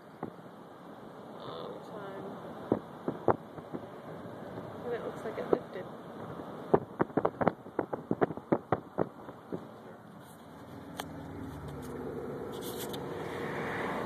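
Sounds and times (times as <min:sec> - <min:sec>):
car engine hum: 0:00.0 - 0:14.0
road noise: 0:00.0 - 0:14.0
sharp clicks and knocks: 0:06.7 - 0:09.8.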